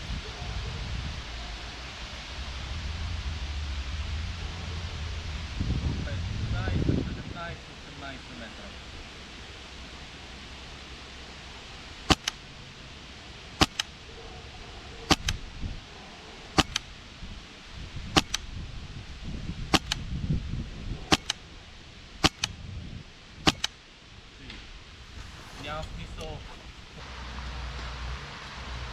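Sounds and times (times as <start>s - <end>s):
airsoft rifle firing single shots: 12.1s - 12.4s, 13.6s - 13.9s, 15.1s - 15.4s, 16.6s - 16.9s, 18.2s - 18.5s, 19.7s - 20.0s, 21.1s - 21.4s, 22.2s - 22.6s, 23.4s - 23.8s.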